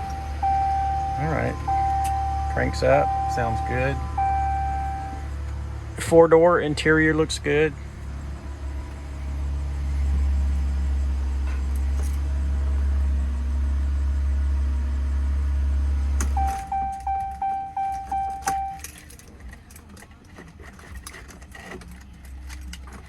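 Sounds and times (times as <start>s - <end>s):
clicks: 0.0s - 5.6s, 16.2s - 18.9s
vehicle warning chime: 0.0s - 6.4s, 16.3s - 19.0s
truck engine idling: 0.0s - 20.2s.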